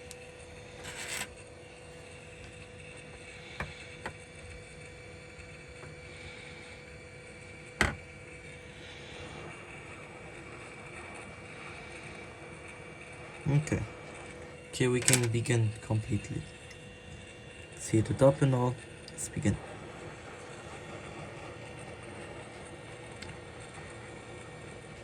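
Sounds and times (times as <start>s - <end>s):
faint hum: 0.0s - 25.0s
fan-like whooshing hiss: 1.4s - 25.0s.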